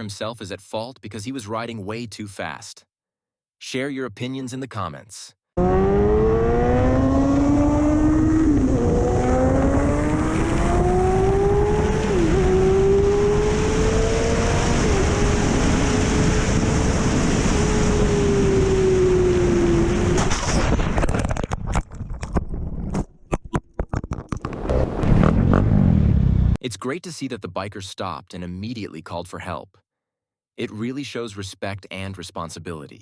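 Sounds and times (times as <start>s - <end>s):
motorcycle engine accelerating: 5.6s - 21.0s, 24.5s - 26.6s
wind rush: 6.7s - 21.6s.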